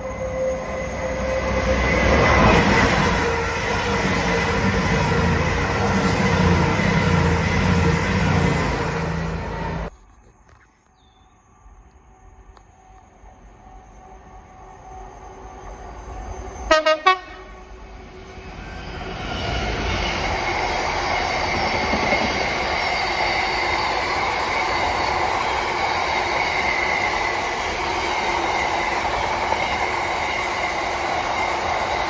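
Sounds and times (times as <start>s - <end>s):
train horn blasts: 0.0s - 4.6s, 16.6s - 17.8s
train rushing past: 0.0s - 9.9s, 13.1s - 32.0s.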